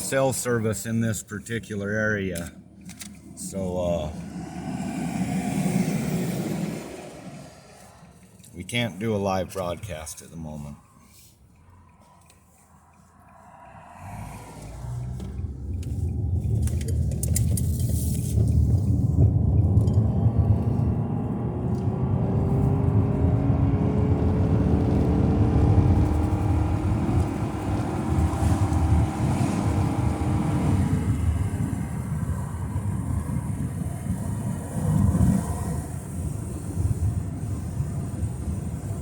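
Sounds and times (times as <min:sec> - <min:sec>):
road and engine noise: 0:00.0 - 0:39.0
wind buffeting microphone: 0:14.1 - 0:39.0.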